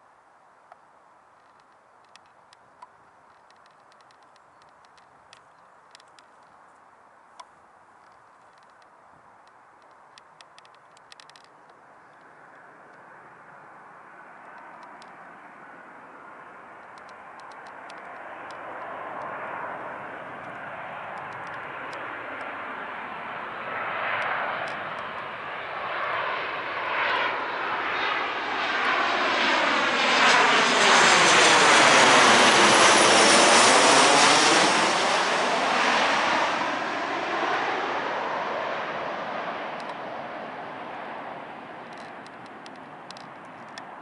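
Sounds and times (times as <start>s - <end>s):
jet airliner passing overhead: 9.0s - 44.0s.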